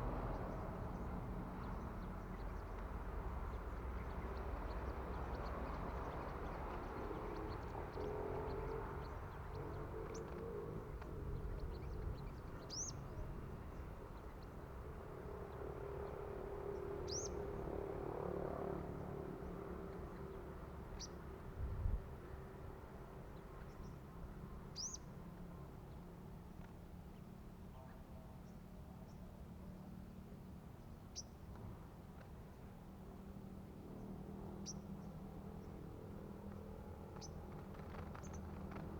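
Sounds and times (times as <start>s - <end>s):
small bird chirping: 11.3s - 13.2s, 17.1s - 17.4s, 24.7s - 25.1s.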